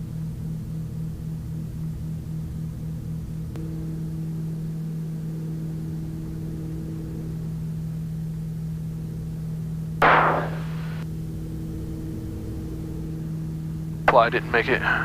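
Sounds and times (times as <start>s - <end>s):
aircraft engines droning: 3.3s - 15.0s
short loud burst of noise: 10.0s - 11.0s.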